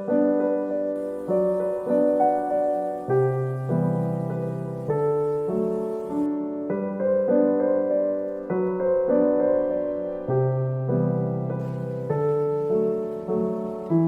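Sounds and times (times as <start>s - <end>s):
soft piano music: 0.0s - 14.0s.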